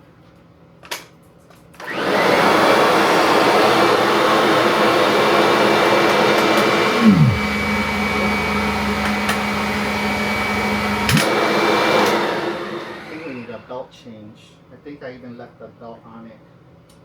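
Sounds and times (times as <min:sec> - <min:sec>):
upright vacuum running: 0:01.8 - 0:13.7
steady low hum: 0:07.0 - 0:07.5
tone sliding down: 0:07.0 - 0:07.5
click: 0:11.1 - 0:11.3.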